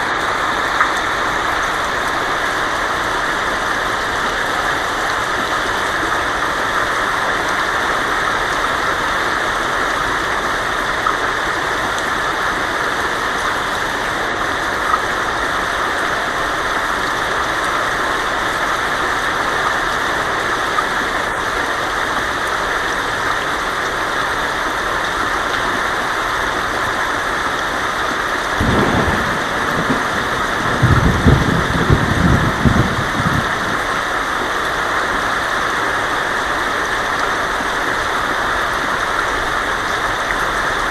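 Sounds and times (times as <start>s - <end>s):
heavy rain on a tin roof: 0.0s - 40.9s
thunder rumbling: 28.6s - 34.2s.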